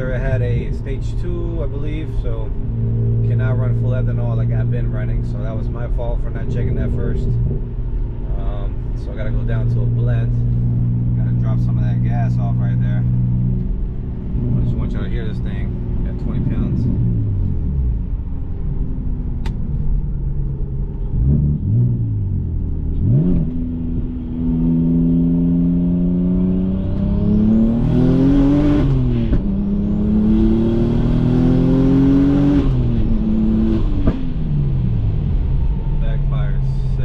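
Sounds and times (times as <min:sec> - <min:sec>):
car engine accelerating: 0:00.0 - 0:37.0.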